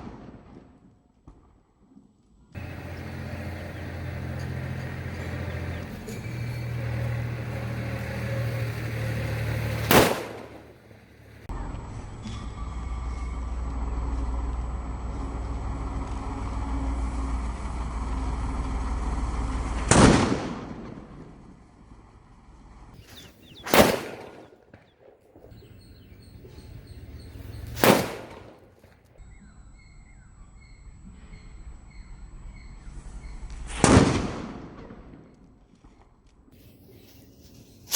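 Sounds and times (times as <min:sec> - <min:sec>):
firecracker bangs: 0:02.6 - 0:10.9, 0:23.0 - 0:24.6, 0:27.2 - 0:28.9.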